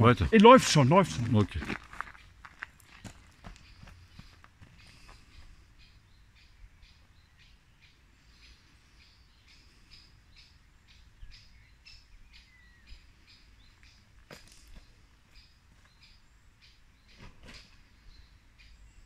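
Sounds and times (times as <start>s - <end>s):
bird chirping: 2.1s - 19.0s.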